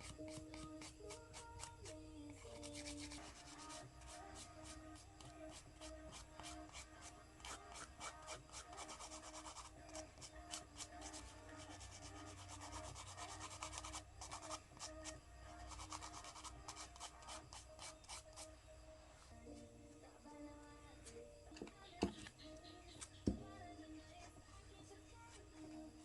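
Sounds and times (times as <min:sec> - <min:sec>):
nail file rubbing fingernails: 0:00.0 - 0:18.6.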